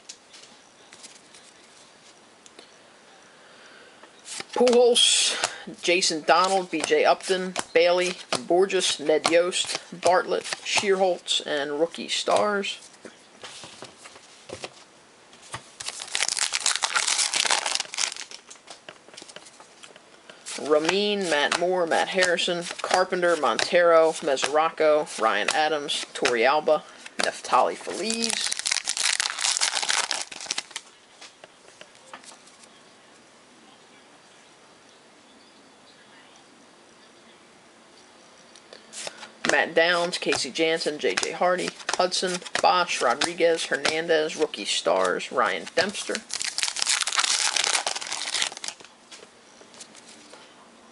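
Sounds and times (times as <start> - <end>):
trading cards being handled: 4.2 - 32.8, 38.8 - 50.4
wrapper being torn and crinkled: 15.8 - 18.6, 28.0 - 30.9, 45.7 - 48.9.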